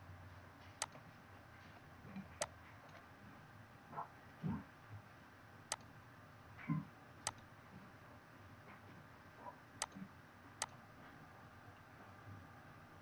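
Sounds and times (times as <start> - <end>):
computer mouse clicking: 0.8 - 1.0, 7.2 - 7.5, 9.8 - 10.0.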